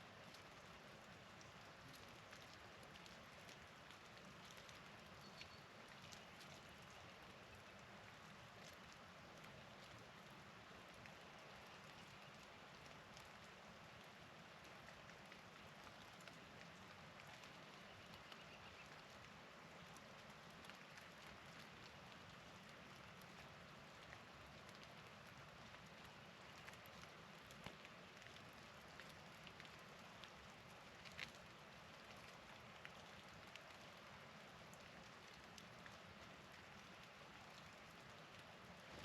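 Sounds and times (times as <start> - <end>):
faint bird chirps: 5.2 - 5.7, 17.8 - 18.9.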